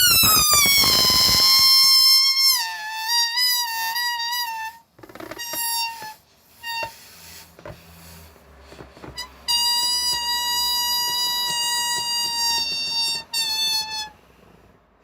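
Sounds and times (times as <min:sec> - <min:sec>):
balloon squealing: 0:00.0 - 0:07.5, 0:09.0 - 0:14.2.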